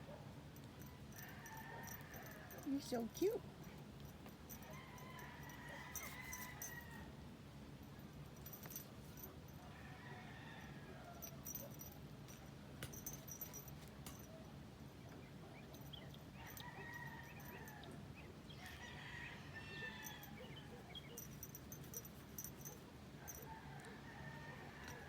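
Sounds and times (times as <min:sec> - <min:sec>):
distant roosters crowing: 0:00.8 - 0:03.4, 0:04.4 - 0:07.4, 0:08.6 - 0:11.9, 0:15.8 - 0:25.0.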